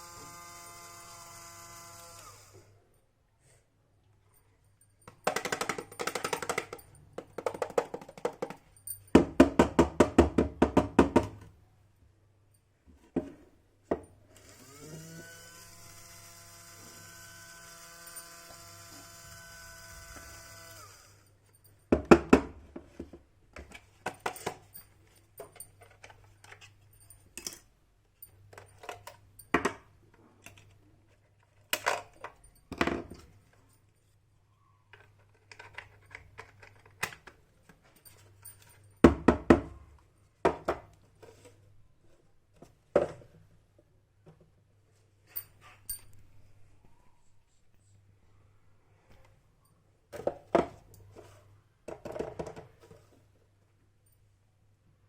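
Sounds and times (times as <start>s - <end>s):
small electric motor whining: 0.0s - 2.8s, 14.3s - 21.3s
plastic parts clattering: 5.0s - 8.9s, 22.8s - 27.7s, 34.9s - 38.9s.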